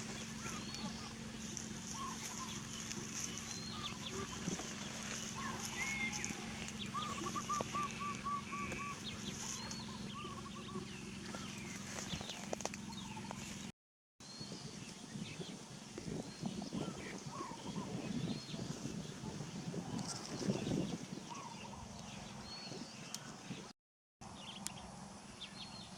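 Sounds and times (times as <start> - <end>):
chirping animal calls: 0.0 - 13.6
low hum: 0.0 - 13.7.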